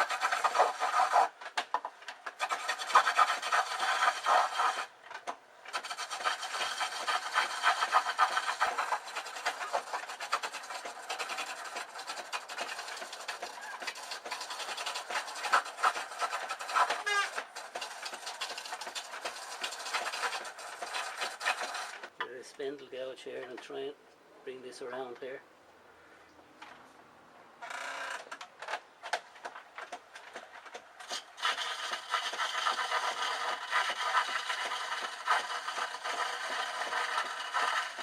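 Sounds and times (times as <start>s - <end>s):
gouge scraping spinning wood: 0.0s - 1.4s, 2.2s - 5.0s, 5.7s - 22.1s, 30.2s - 38.0s.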